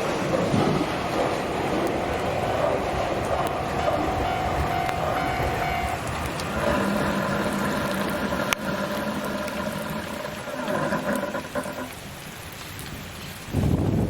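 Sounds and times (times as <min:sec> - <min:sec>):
electric train motors humming: 0:00.0 - 0:10.9
rain hissing: 0:00.0 - 0:14.0.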